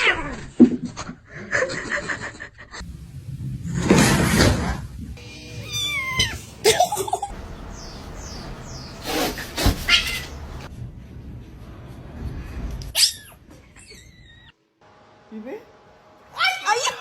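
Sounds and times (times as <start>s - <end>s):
cat meowing: 5.5s - 6.5s, 9.8s - 10.4s.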